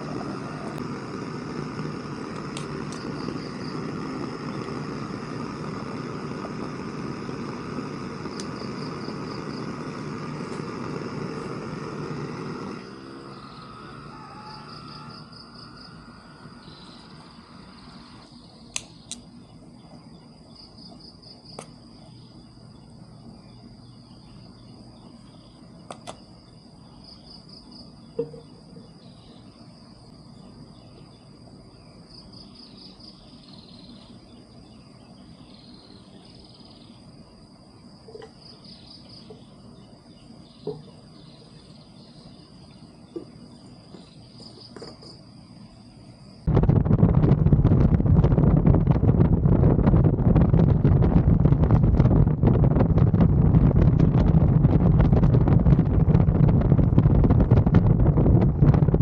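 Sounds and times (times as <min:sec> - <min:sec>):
low hum: 0:00.0 - 0:32.7, 0:45.2 - 0:59.0
insects trilling: 0:00.0 - 0:59.0
loud pulsing insect trill: 0:00.0 - 0:59.0
sharp clicks: 0:02.3 - 0:03.7, 0:08.2 - 0:08.7, 0:18.7 - 0:19.3, 0:25.9 - 0:26.2.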